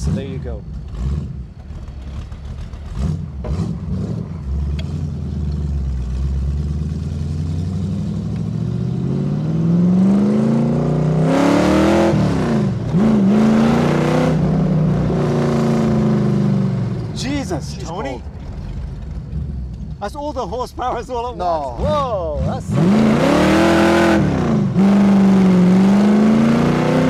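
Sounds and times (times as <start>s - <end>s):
car engine accelerating hard: 0.0s - 20.0s, 21.2s - 27.0s.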